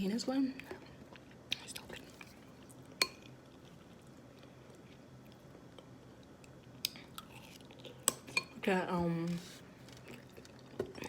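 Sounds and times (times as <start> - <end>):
faint chewing: 1.1 - 8.4, 9.8 - 11.0.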